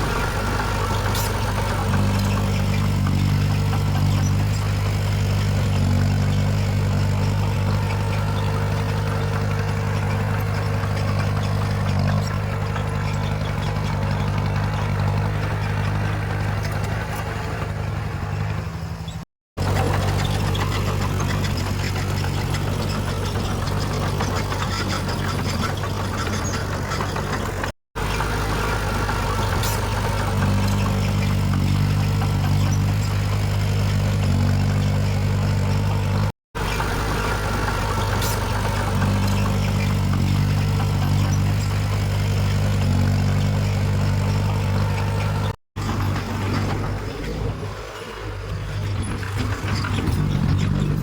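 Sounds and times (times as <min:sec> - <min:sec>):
diesel engine humming: 0:00.0 - 0:51.0.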